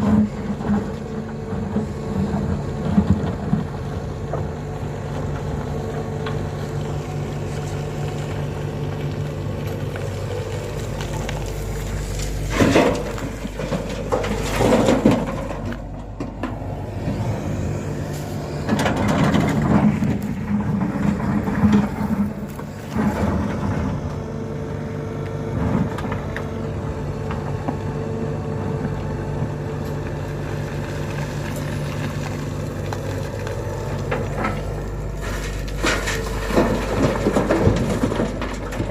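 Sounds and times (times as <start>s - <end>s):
rough rumble of load dumped: 0.0s - 28.9s, 29.9s - 38.9s
excavator diesel engine running: 0.0s - 38.9s
bucket load crashing: 12.4s - 16.6s, 35.2s - 38.9s.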